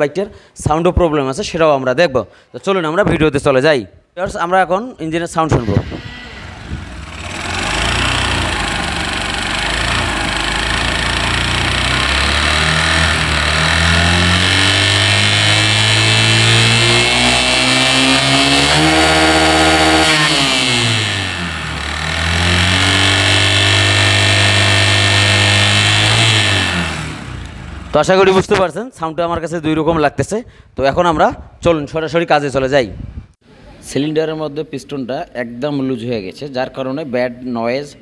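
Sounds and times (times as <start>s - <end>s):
motorcycle engine revving: 5.5s - 28.4s.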